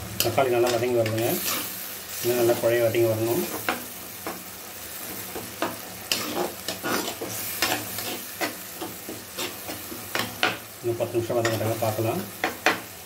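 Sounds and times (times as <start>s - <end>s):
food sizzling in oil: 0.0s - 13.0s
ladle scraping a pot: 6.1s - 9.9s.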